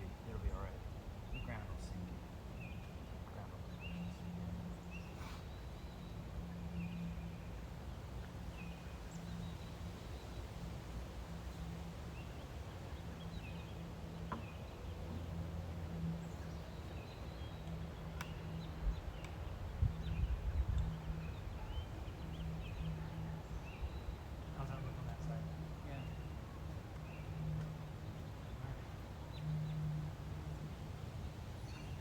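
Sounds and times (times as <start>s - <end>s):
low wavering hum: 0.0s - 32.0s
small birds chirping: 0.0s - 32.0s.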